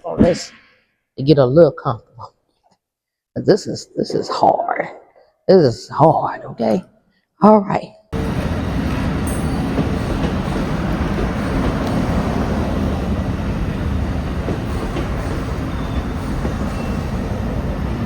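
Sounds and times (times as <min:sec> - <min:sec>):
train wheels rumbling on track: 0:08.2 - 0:18.0.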